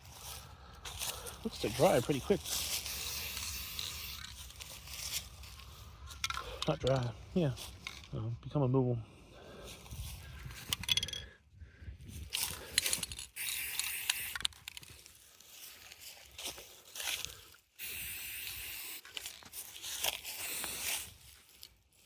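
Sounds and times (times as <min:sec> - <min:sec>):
aerosol spray can hissing: 0:02.6 - 0:04.4, 0:17.8 - 0:19.0.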